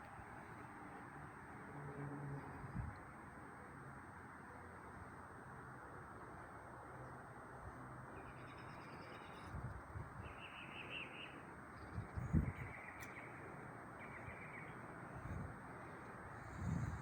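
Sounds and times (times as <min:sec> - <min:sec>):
birds chirping: 0:10.2 - 0:16.6.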